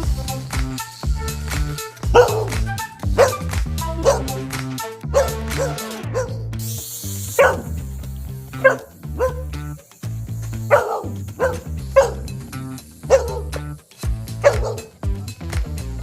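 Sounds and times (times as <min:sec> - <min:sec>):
background music with beat: 0:00.0 - 0:16.0
dog barking: 0:02.1 - 0:02.6, 0:03.2 - 0:03.4, 0:04.0 - 0:04.3, 0:05.1 - 0:06.4, 0:07.4 - 0:07.8, 0:08.6 - 0:09.6, 0:10.7 - 0:12.3, 0:13.1 - 0:13.6, 0:14.4 - 0:14.9.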